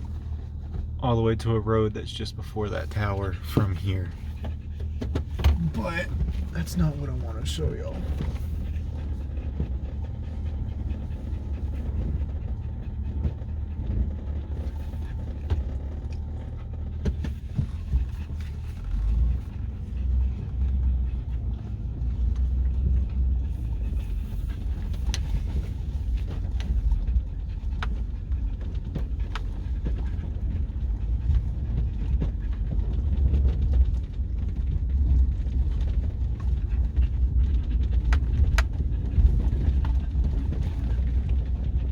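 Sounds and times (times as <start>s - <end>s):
truck driving rumble: 0.0s - 41.9s
dog panting: 2.6s - 41.9s.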